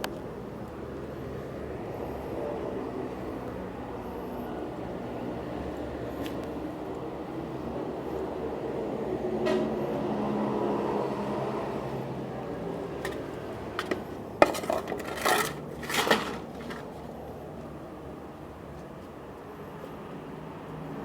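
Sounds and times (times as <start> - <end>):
engine hum: 9.0 - 18.1
sharp clattering knocks: 13.0 - 16.9.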